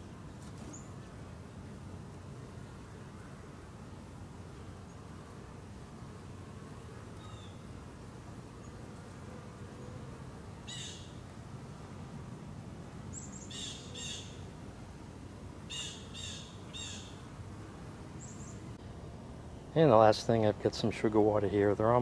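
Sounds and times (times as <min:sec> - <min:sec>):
bird calling: 0:10.7 - 0:11.2, 0:13.1 - 0:14.4, 0:15.7 - 0:17.2.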